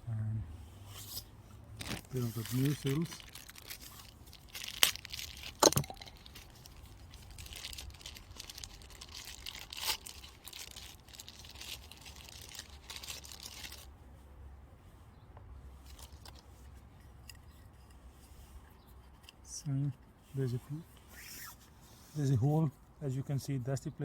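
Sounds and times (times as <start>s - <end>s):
plastic packaging crinkling: 1.8s - 13.9s.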